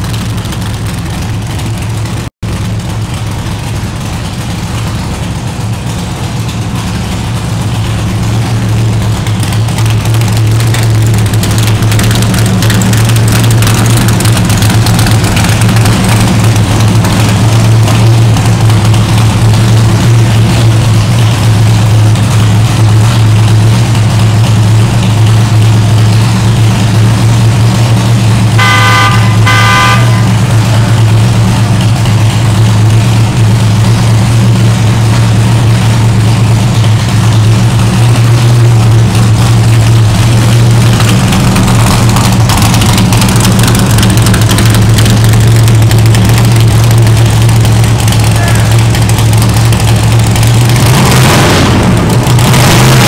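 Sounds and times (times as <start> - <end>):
car engine idling: 0.0 - 53.0
car horn toots: 28.5 - 31.1.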